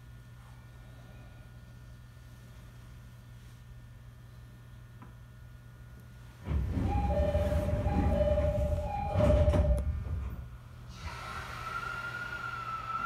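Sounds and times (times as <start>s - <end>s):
train rumble: 6.4s - 11.3s
alternating high and low tones: 6.9s - 9.8s.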